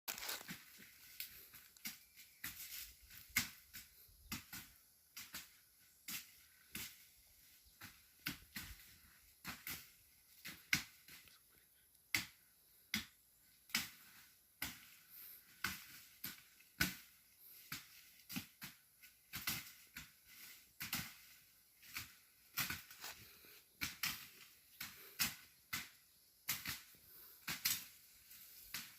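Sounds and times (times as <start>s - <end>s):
dry vegetation crackling: 0.1s - 4.3s, 15.1s - 25.4s.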